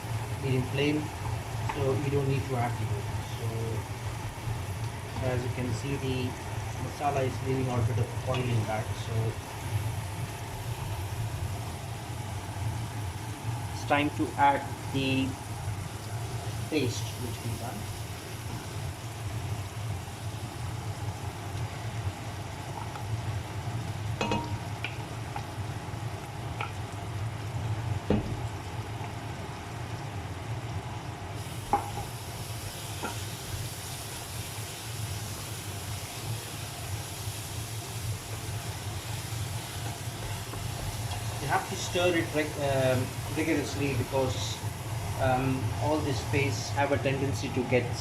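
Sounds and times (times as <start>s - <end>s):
paste sizzling in hot oil: 0.0s - 28.9s, 31.3s - 48.0s
steady low hum: 0.0s - 48.0s
spoon knocking against pan: 24.2s - 24.6s.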